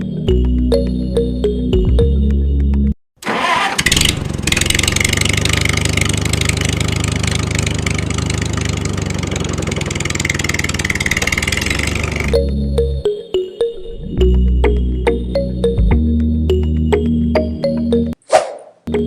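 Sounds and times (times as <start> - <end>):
engine chattering: 3.2 - 12.4.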